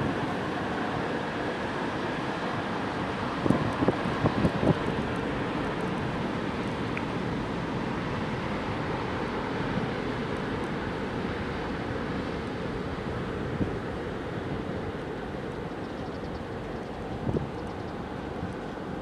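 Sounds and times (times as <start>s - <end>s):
wind on microphone: 3.3s - 5.4s, 17.0s - 18.6s.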